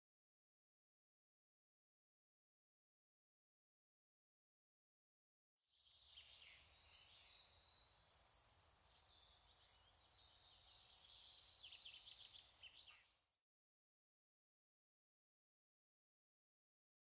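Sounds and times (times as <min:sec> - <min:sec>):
birds chirping and trilling: 0:05.8 - 0:13.4.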